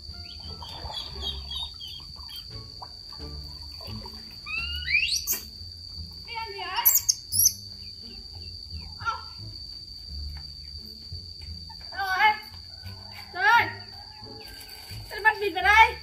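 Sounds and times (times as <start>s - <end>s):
ducklings peeping: 0.0s - 2.9s
insects droning: 0.0s - 16.0s.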